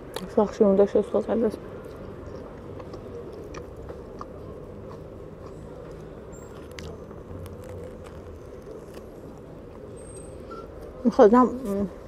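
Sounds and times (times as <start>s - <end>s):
low background noise: 0.0s - 12.0s
person chewing sandwich: 1.7s - 9.9s
wet mouth clicks: 1.9s - 8.3s.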